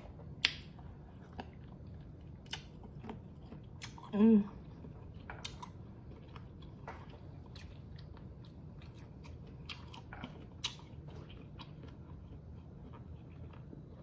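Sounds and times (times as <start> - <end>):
close chewing and biting: 0.0 - 14.0.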